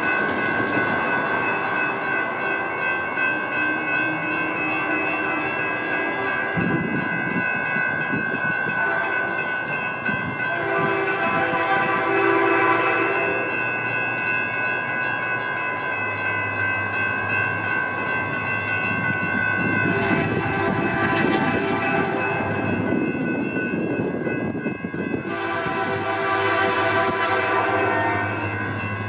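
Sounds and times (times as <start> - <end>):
train passing: 0.0 - 29.0
train horn: 3.6 - 7.0, 8.7 - 9.5, 10.4 - 13.5, 19.8 - 22.6, 25.2 - 28.5.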